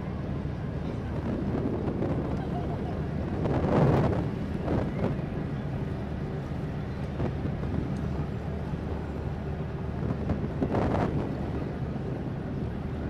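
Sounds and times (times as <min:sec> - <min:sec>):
ship engine hum: 0:00.0 - 0:13.0.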